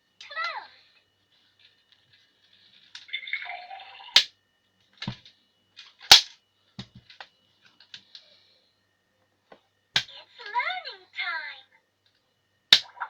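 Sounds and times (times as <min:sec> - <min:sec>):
plastic toy clicking and knocking: 0:05.0 - 0:07.3.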